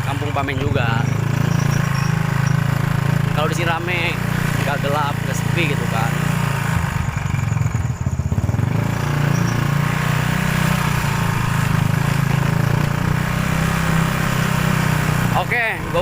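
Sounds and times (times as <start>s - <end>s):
motorcycle engine running: 0.0s - 16.0s
wind and road noise: 0.0s - 16.0s.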